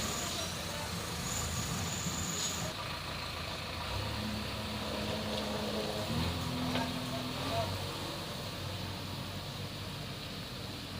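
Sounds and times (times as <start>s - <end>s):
heavy diesel engine running: 0.0s - 10.9s.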